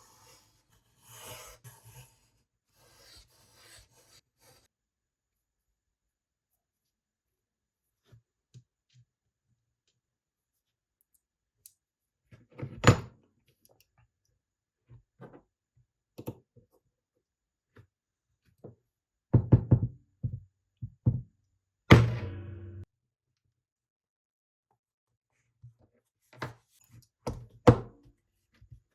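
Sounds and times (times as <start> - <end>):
knocks and thuds: 21.9 - 22.8.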